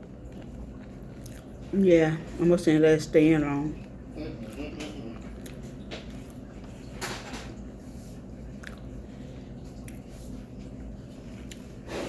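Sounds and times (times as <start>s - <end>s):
person chewing: 0.0s - 1.7s, 3.8s - 6.9s, 8.4s - 12.0s.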